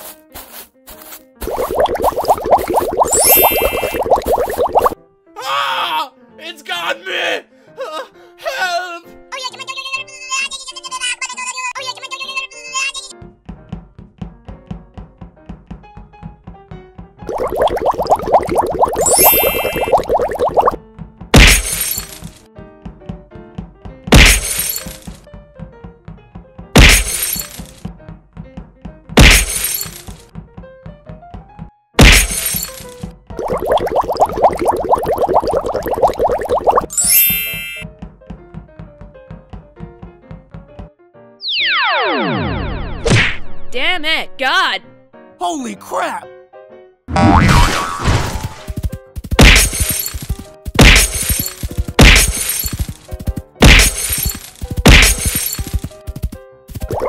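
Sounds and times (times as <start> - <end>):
background music: 0.2 - 13.5, 32.0 - 37.5, 43.7 - 48.8
cartoon crashing and shattering: 24.1 - 25.0, 26.8 - 27.7, 29.2 - 30.1, 32.0 - 33.0, 47.1 - 48.7, 53.6 - 55.8
falling pieces clattering: 27.0 - 27.8.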